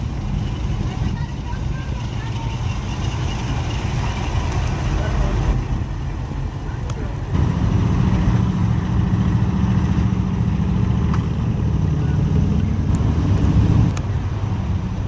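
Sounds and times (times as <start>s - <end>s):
car engine running at low revs: 3.6s - 15.0s.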